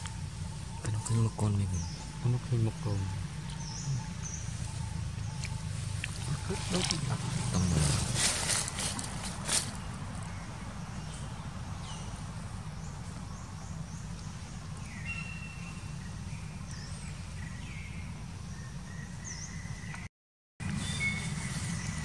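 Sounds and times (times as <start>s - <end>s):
low rumble: 0.0s - 14.8s.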